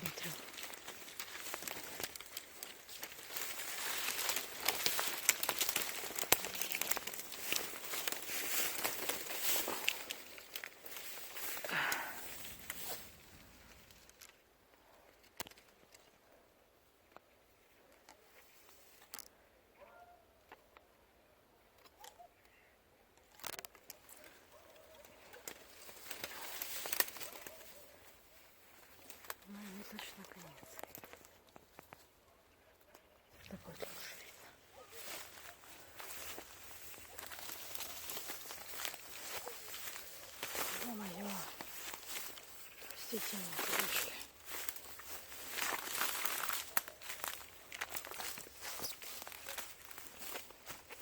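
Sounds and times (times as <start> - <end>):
footsteps crunching dry ground cover: 0.0 - 14.4, 23.9 - 32.1, 33.3 - 51.0
twigs snapping: 0.0 - 14.4, 15.1 - 16.1, 23.2 - 32.0, 33.4 - 51.0.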